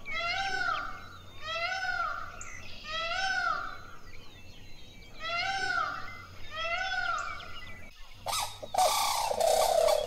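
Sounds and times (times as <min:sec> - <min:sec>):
peacock calling: 0:08.2 - 0:10.0.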